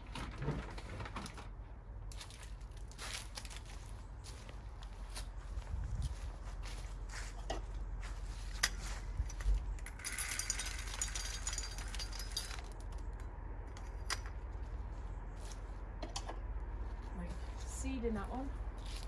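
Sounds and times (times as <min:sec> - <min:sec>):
low steady rumble: 0:00.0 - 0:19.0
rattle of small hard pieces: 0:02.1 - 0:04.0, 0:08.5 - 0:14.3.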